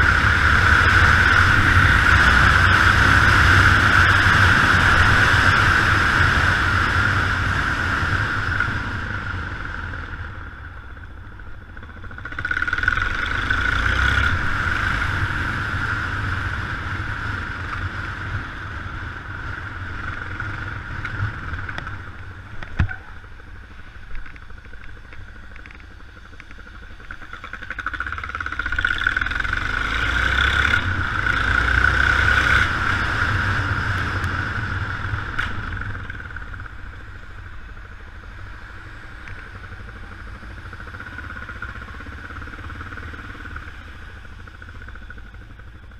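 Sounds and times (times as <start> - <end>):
wind rushing over microphone: 0.0 - 10.7
motorcycle engine running: 0.0 - 45.9.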